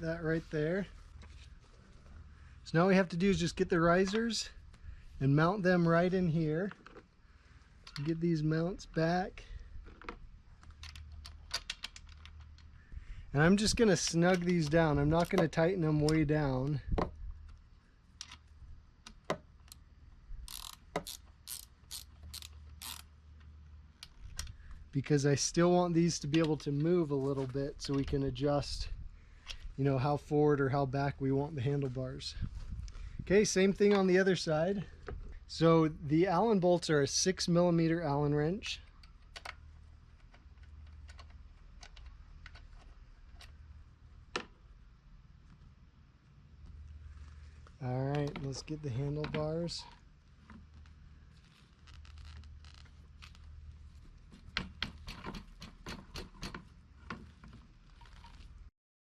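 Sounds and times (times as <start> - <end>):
ratchet wrench clicking: 20.5 - 23.1.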